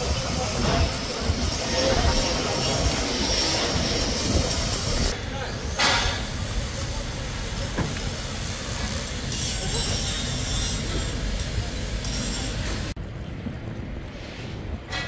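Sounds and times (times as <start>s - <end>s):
station background noise: 0.0s - 9.3s
train rumble with hiss: 0.0s - 15.0s.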